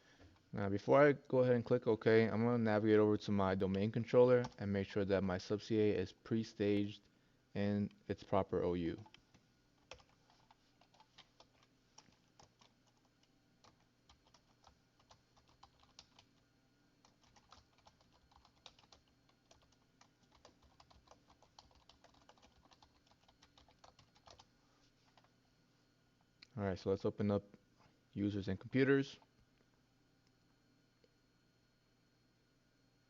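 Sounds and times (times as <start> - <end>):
faint keyboard typing: 8.8 - 25.5.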